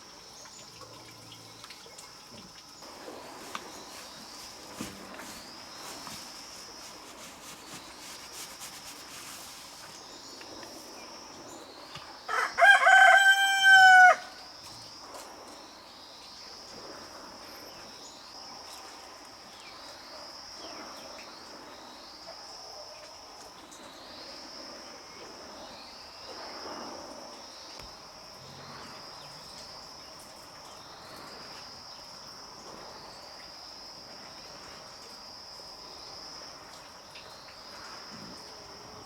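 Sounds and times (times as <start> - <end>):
insects whining: 2.6 - 22.7
rooster crowing: 12.3 - 14.5.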